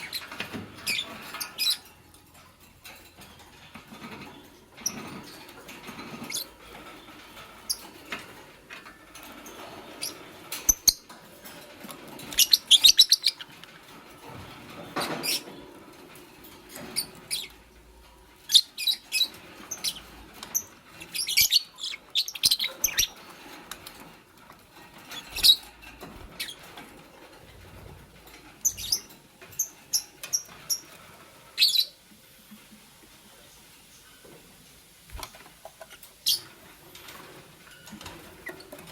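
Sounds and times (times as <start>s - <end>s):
lovebirds chirping: 9.5s - 11.1s, 12.2s - 13.7s, 18.4s - 24.0s, 25.0s - 26.7s, 28.5s - 32.0s, 35.1s - 36.6s.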